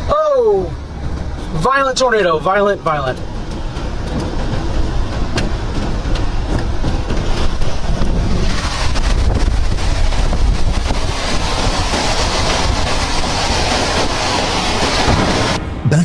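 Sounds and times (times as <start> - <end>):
strong wind buffeting microphone: 3.9 - 16.0.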